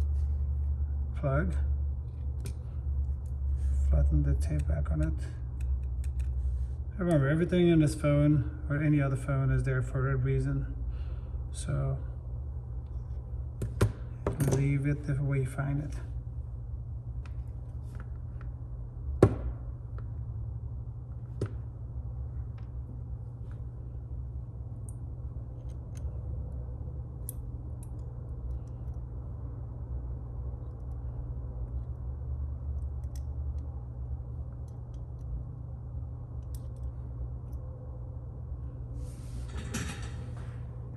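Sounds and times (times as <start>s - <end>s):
steady low hum: 0.0s - 40.9s
clicks and taps on phone parts: 13.6s - 14.6s.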